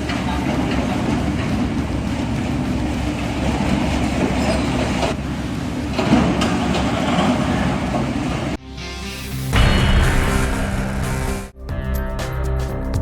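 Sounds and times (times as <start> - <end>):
heavy machinery rumbling: 9.5 - 11.6.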